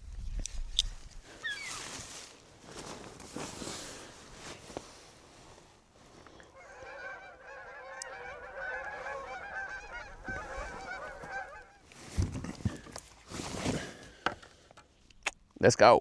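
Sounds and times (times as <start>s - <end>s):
rustling: 0.8s - 14.6s
geese honking: 6.4s - 11.9s.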